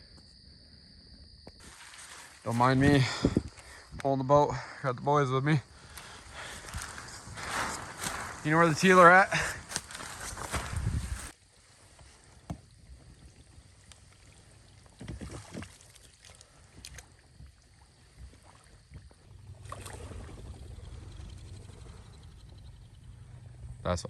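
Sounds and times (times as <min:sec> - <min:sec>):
boat knocks and rustles: 0:06.0 - 0:20.5
water rushing: 0:06.5 - 0:10.2.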